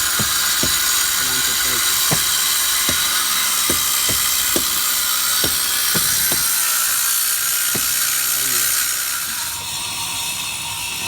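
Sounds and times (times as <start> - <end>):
short knocks: 0.0 - 6.9, 7.5 - 8.8
angle grinder on concrete: 0.0 - 9.1.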